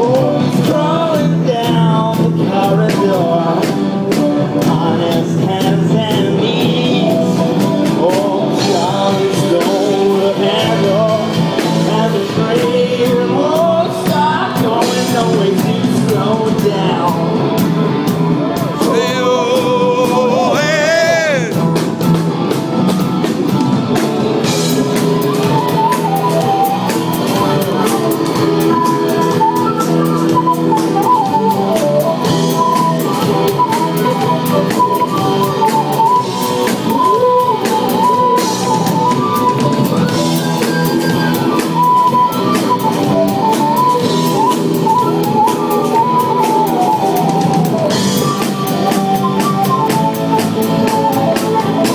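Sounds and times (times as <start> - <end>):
live rock band playing: 0.0 - 51.9
wavering lead melody: 18.7 - 21.6.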